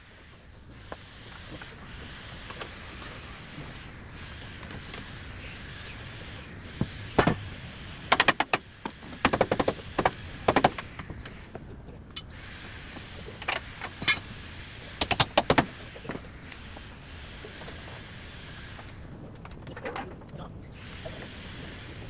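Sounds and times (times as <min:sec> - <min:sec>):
steady background hiss: 0:00.0 - 0:22.0
hand tools and engine parts clinking: 0:12.1 - 0:12.4, 0:13.3 - 0:14.4.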